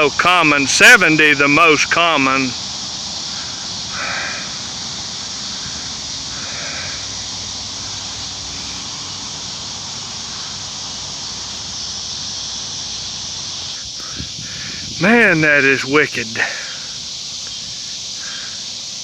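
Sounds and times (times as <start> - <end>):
insect chorus drone: 0.0 - 19.0
crow cawing: 3.2 - 9.0.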